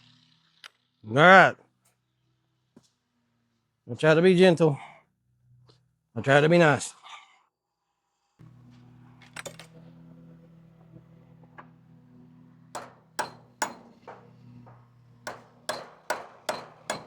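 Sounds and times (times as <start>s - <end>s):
low hum: 8.4s - 17.0s
hammer striking board: 12.7s - 17.0s.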